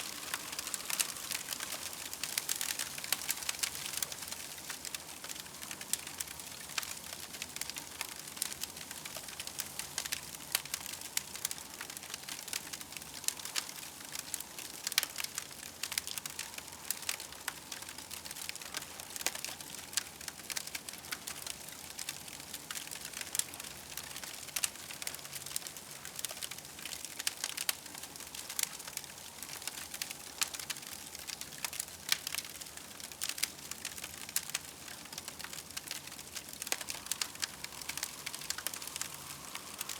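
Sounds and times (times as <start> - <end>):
campfire crackling: 0.0 - 39.9
sharp pops and snaps: 33.2 - 39.9.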